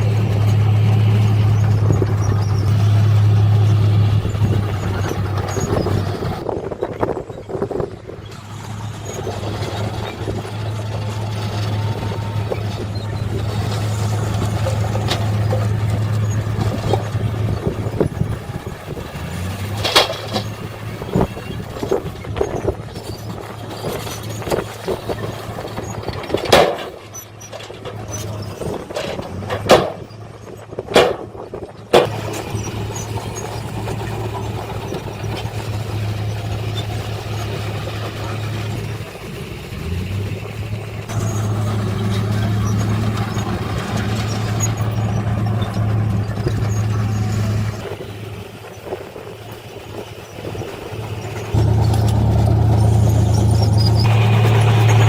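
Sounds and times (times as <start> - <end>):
diesel engine running: 0.0 - 55.0
sharp knocks and clanks: 26.1 - 30.1, 30.9 - 34.4.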